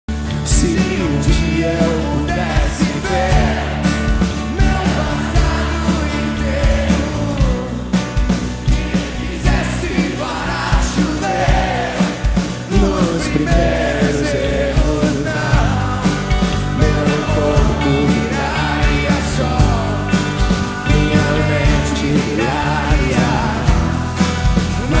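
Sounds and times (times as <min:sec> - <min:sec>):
rock song with sung vocal: 0:00.1 - 0:25.0
steady drum beat: 0:00.1 - 0:25.0.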